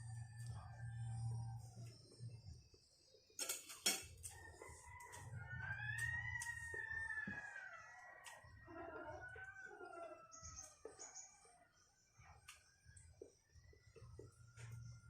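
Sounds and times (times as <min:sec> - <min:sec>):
rooster crowing: 0:04.2 - 0:11.0.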